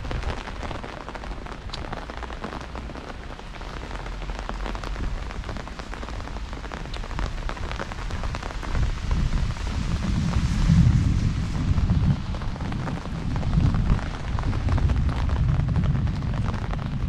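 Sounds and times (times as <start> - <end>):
heavy rain falling: 0.0 - 17.0
low rumble: 7.4 - 17.0.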